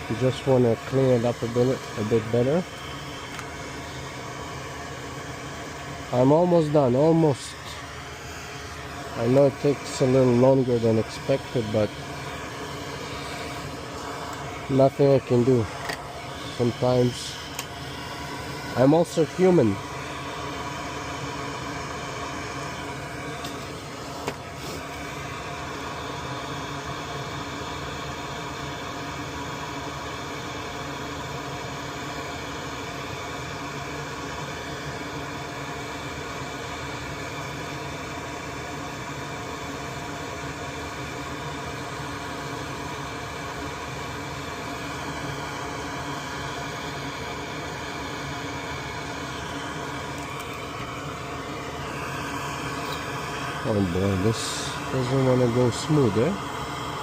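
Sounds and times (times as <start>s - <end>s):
electric blower fan humming: 0.0s - 57.0s.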